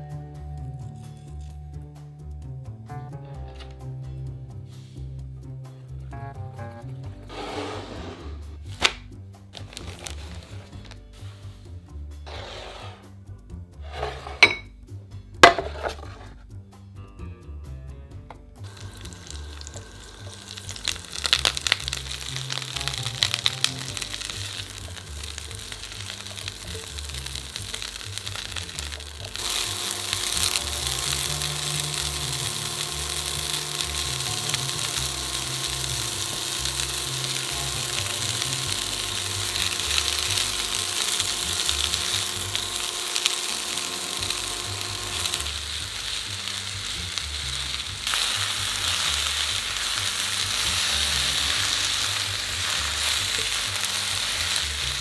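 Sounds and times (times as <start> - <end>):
background music with pulsing bass: 0.0 - 7.3, 16.1 - 55.0
vegetables sizzling in oil: 9.6 - 10.6, 18.6 - 55.0
wooden spatula stirring: 13.8 - 14.5, 15.4 - 16.4
clattering: 15.4 - 16.4.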